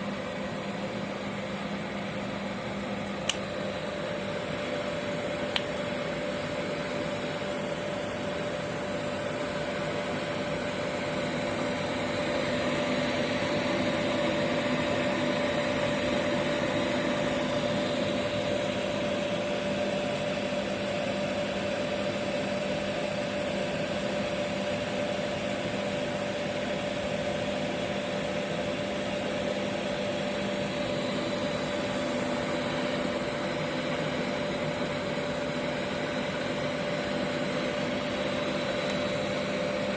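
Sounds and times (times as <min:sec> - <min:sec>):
boiler burner blower hum: 0:00.0 - 0:39.9
burner click: 0:03.1 - 0:03.6, 0:05.5 - 0:06.0, 0:38.7 - 0:39.2.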